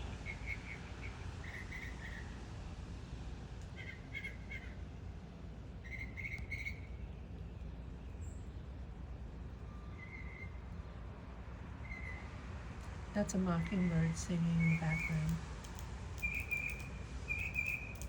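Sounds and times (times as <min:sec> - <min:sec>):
low background noise: 0:00.0 - 0:18.0
mockingbird singing: 0:13.6 - 0:15.4, 0:16.2 - 0:18.0.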